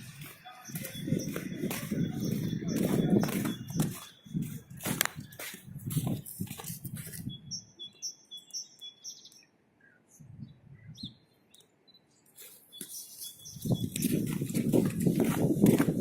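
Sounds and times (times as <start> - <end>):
small bird chirping: 0.4 - 4.6, 7.0 - 14.3.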